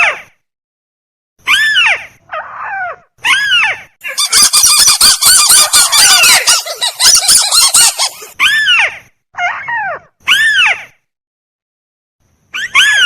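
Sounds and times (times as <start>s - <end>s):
crake calls: 4.0s - 8.4s.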